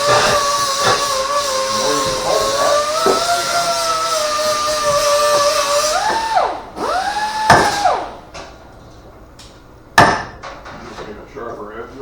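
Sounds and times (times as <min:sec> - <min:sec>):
electric power tool whining: 0:00.0 - 0:08.4
sharp knock: 0:10.0 - 0:10.5.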